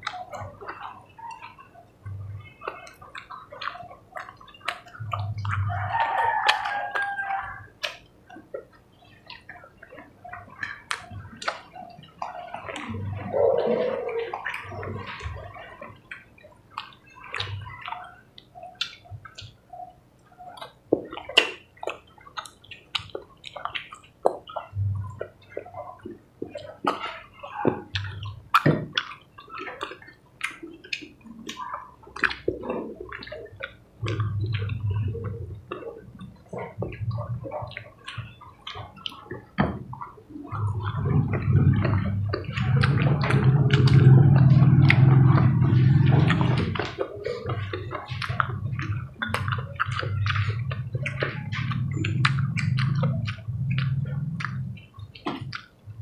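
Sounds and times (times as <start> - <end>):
wet chewing and lip-smacking: 0.0 - 56.0
low humming: 40.4 - 56.0.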